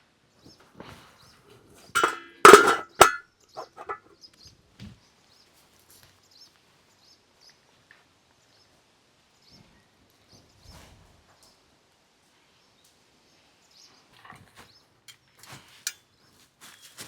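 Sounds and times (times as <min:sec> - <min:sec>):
sharp metallic clangs: 0:02.0 - 0:04.0.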